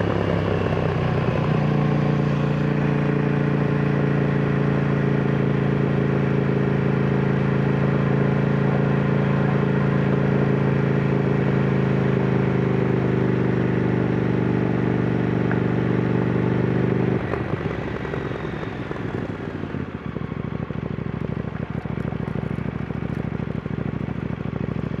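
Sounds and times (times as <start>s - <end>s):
motorcycle engine running: 0.0s - 25.0s
rattly engine idle: 15.0s - 25.0s.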